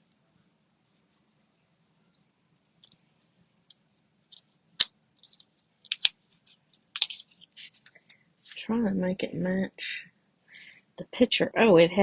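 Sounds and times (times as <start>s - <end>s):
paper rustling: 5.2s - 8.7s.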